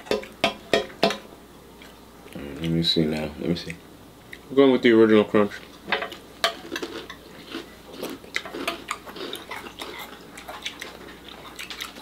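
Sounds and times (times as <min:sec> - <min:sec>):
cereal being chewed: 0:06.6 - 0:12.0.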